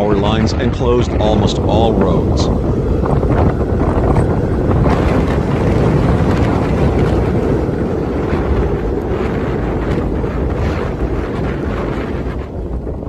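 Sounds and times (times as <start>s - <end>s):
strong wind on microphone: 0.0s - 13.0s.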